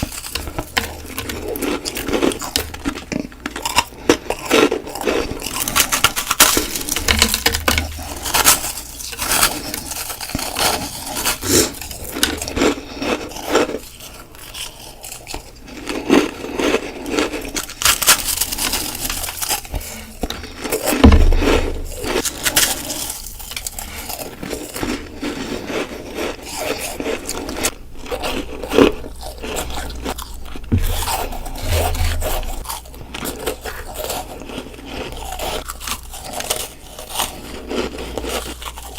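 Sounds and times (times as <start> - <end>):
dull low thumps: 21.0 - 22.3, 30.6 - 32.7.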